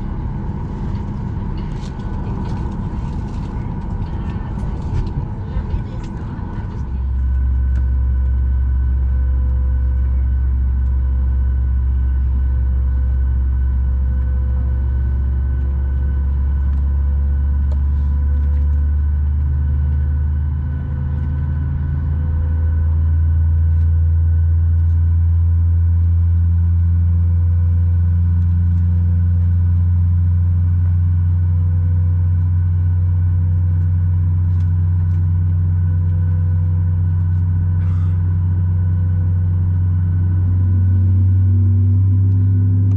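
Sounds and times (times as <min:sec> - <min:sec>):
higher hum: 0:00.0 - 0:19.0, 0:37.4 - 0:42.9
steady whine tones: 0:00.0 - 0:42.9.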